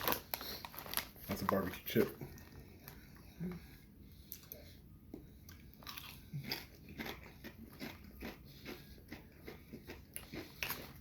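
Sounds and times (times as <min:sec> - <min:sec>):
chewing crisp chips: 0:04.3 - 0:11.0.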